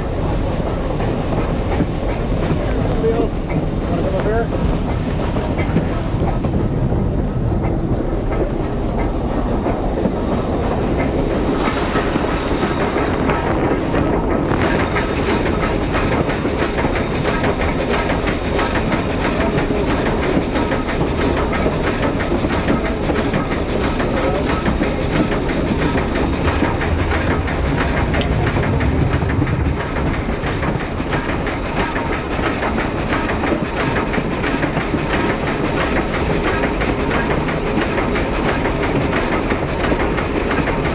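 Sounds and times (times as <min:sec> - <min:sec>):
wheel and rail noise: 0:00.0 - 0:40.9
wheels clattering over rail joints: 0:01.3 - 0:40.9
hiss: 0:08.5 - 0:28.6.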